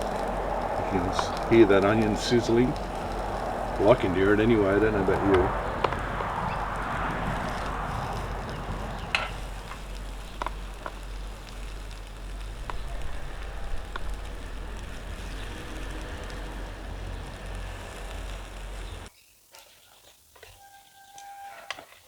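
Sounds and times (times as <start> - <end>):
food sizzling in a pan: 0.0 - 20.3.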